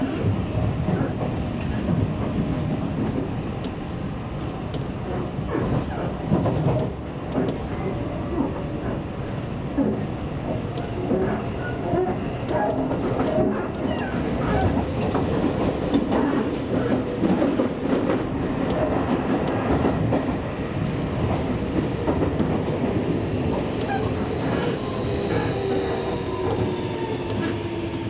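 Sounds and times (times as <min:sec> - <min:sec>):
train wheels clattering: 0:09.8 - 0:27.8.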